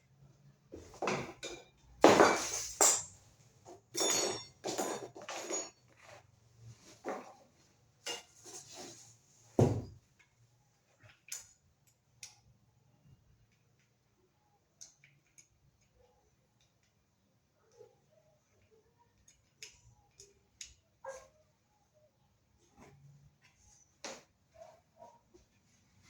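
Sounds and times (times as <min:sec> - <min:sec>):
hard objects clinking and knocking: 0:01.0 - 0:03.2, 0:03.8 - 0:05.9.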